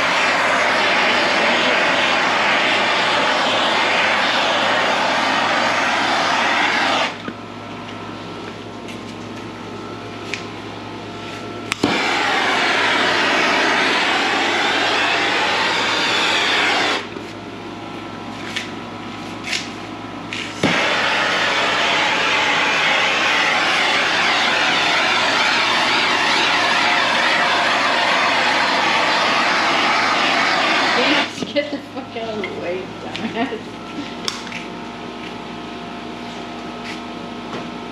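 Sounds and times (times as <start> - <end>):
loud rushing noise: 0.0 - 7.2, 11.8 - 17.1, 20.6 - 31.4
steady machine hum: 0.0 - 37.9.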